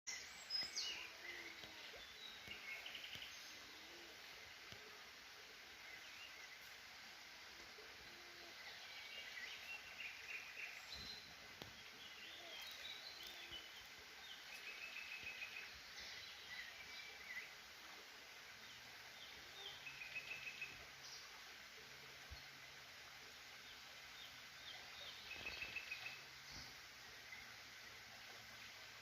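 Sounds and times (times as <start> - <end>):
background hiss: 0.1 - 29.0
birds chirping and trilling: 23.6 - 28.8.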